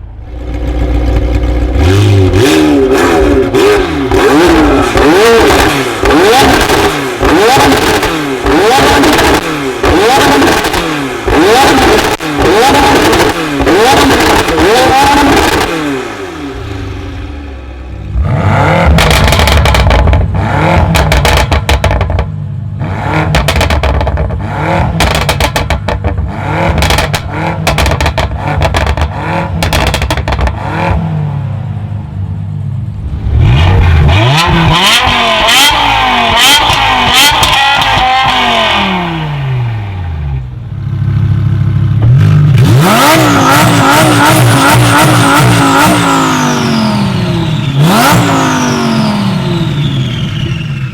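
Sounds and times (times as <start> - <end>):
car engines revving hard: 0.4 - 31.8, 33.0 - 50.9
exhaust pops and bangs: 4.1 - 15.7, 18.8 - 22.4, 23.2 - 31.0.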